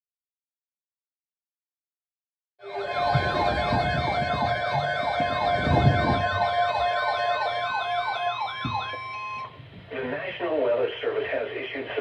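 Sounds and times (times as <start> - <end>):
electronic siren yelping: 2.6 - 9.6.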